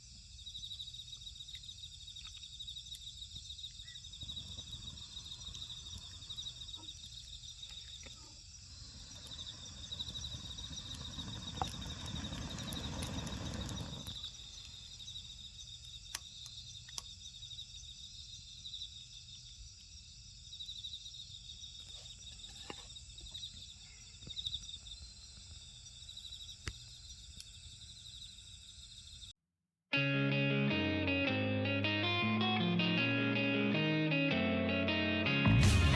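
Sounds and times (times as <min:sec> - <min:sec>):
insects chirping: 0:00.0 - 0:29.4
wood fire crackling: 0:02.2 - 0:17.2.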